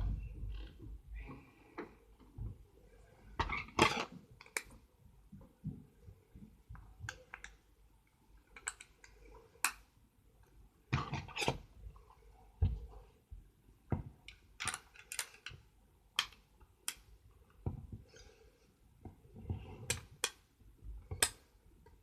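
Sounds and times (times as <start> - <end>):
plastic bricks clicking: 8.5 - 9.8, 14.3 - 15.6.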